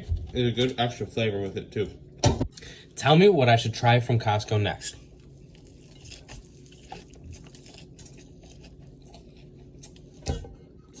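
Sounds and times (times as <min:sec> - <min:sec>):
crunchy chewing: 0:05.0 - 0:10.2.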